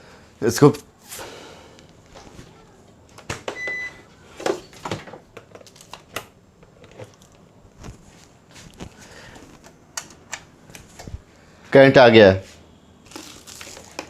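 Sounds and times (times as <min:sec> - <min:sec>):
clicks and knocks handling cables: 0:04.4 - 0:08.1.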